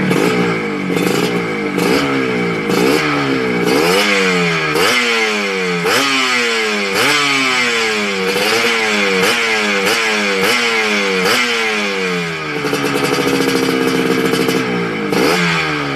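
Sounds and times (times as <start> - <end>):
two-stroke engine revving: 0.0 - 15.9.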